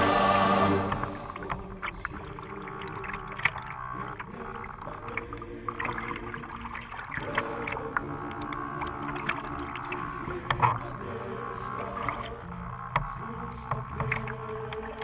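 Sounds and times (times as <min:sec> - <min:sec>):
low hum: 0:00.0 - 0:06.9
water splashing and lapping: 0:05.1 - 0:07.8.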